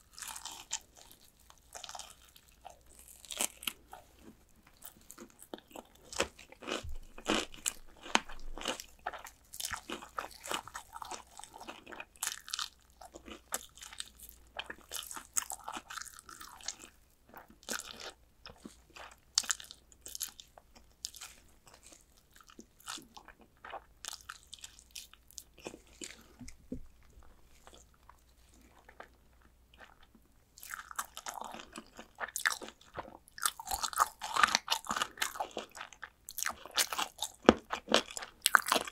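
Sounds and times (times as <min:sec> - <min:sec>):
crunchy chewing: 0:00.0 - 0:38.9.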